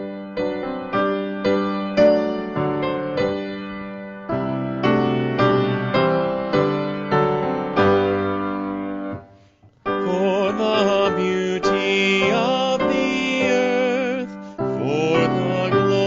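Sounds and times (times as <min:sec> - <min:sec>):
piano playing hymn chords: 0:00.0 - 0:16.0
person singing with vibrato: 0:09.9 - 0:16.0.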